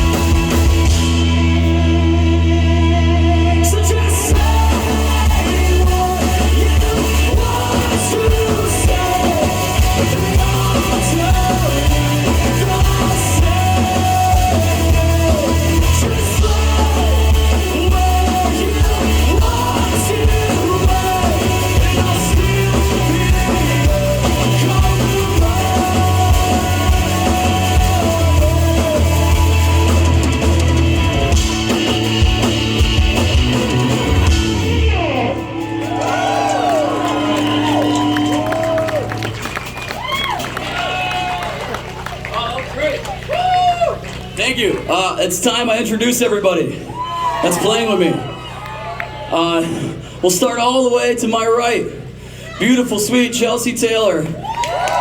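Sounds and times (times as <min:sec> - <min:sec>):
drum kit: 0:00.0 - 0:45.6
bass guitar: 0:00.0 - 0:55.0
person singing: 0:01.5 - 0:30.4.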